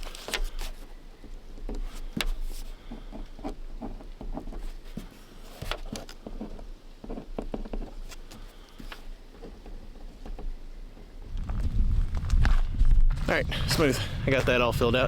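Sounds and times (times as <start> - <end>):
paper rustling: 0.0 - 0.9, 1.7 - 10.4.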